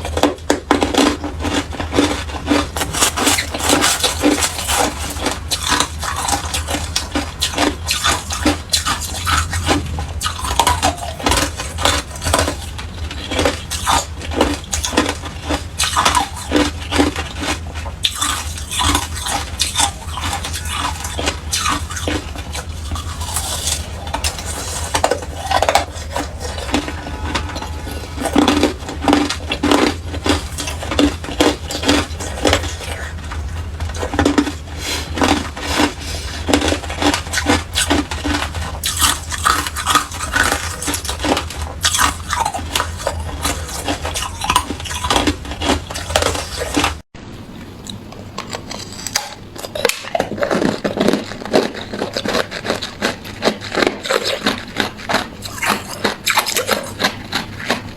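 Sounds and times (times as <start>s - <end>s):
ice crunching being chewed: 0.0s - 47.0s, 47.8s - 57.9s.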